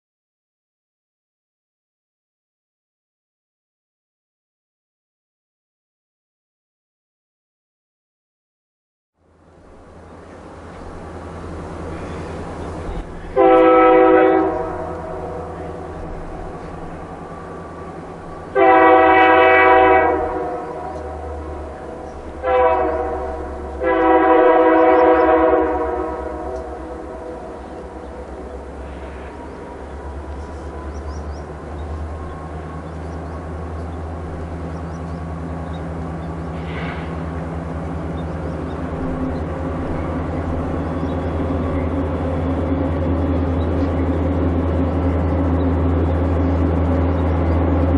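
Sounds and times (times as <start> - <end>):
locomotive engine rumble: 9.2 - 47.9
locomotive air horn: 13.3 - 15.9, 18.5 - 28.0.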